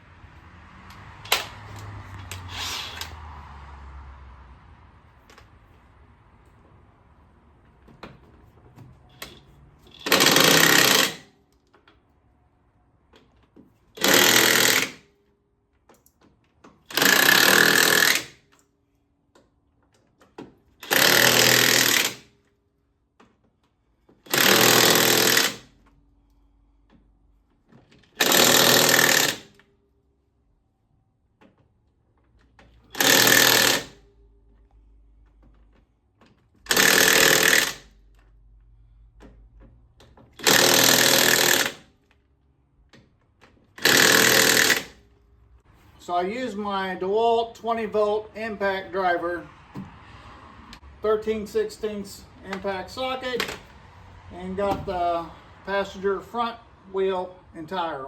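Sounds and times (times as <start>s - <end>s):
impact wrench hammering: 9.2s - 11.3s, 14.0s - 15.1s, 16.9s - 18.4s, 20.8s - 22.3s, 24.2s - 25.7s, 28.1s - 29.6s, 32.9s - 34.0s, 36.7s - 38.0s, 40.3s - 41.9s, 43.8s - 45.0s.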